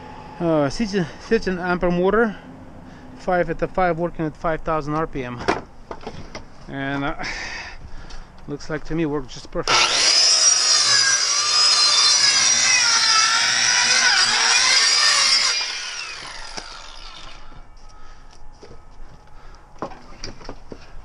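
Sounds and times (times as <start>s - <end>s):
circular saw cutting wood: 9.7s - 17.5s
saw blade winding down: 9.7s - 17.5s.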